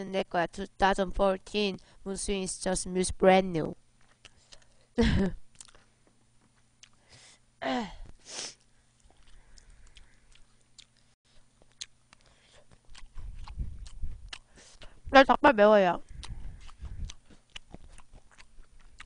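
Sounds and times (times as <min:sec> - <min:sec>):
woman chewing: 0:05.5 - 0:05.9, 0:06.8 - 0:07.2, 0:08.6 - 0:15.0, 0:16.0 - 0:19.0
short hiss of breath: 0:08.2 - 0:08.6.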